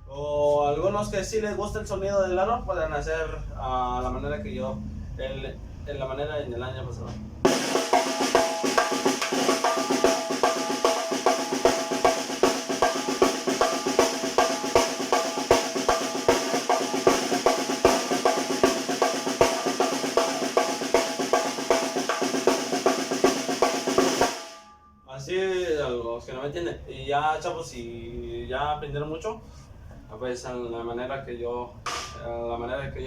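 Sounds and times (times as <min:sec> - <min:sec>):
snare drum played with sticks: 0:07.5 - 0:24.6, 0:31.9 - 0:32.2
sticks striking drum rim: 0:31.9 - 0:32.2.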